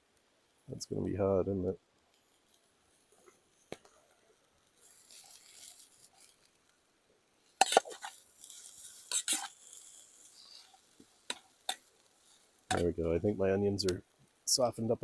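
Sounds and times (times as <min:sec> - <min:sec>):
onions sizzling in a pan: 0:02.3 - 0:14.6
metal utensil scraping a pan: 0:07.6 - 0:12.9.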